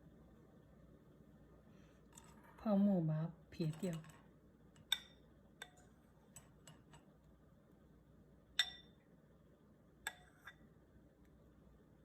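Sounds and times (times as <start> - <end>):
spoon clinking against a dish: 4.8 - 7.0, 8.5 - 9.0, 10.1 - 10.6.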